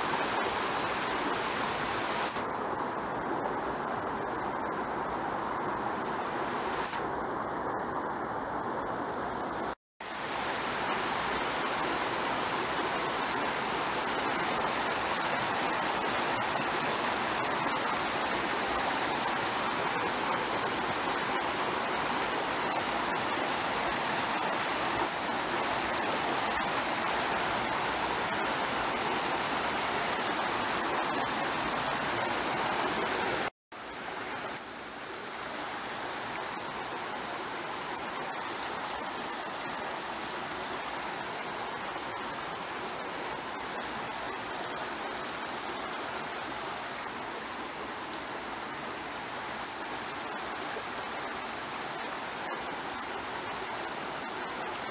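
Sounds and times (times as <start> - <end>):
running water from a stream: 0.0 - 54.9.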